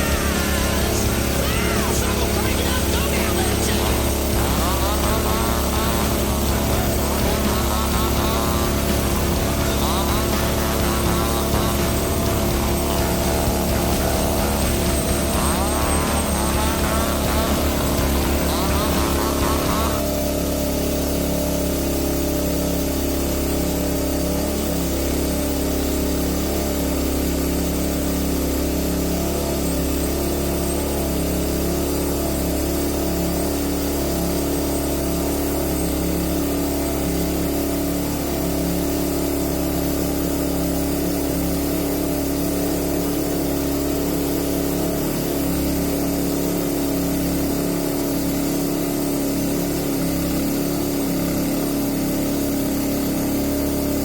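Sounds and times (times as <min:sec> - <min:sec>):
bandsaw mill engine droning: 0:00.0 - 0:54.0.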